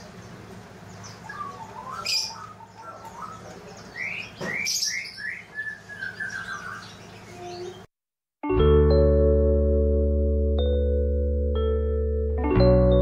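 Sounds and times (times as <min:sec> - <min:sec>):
small birds chirping: 0:00.0 - 0:07.9.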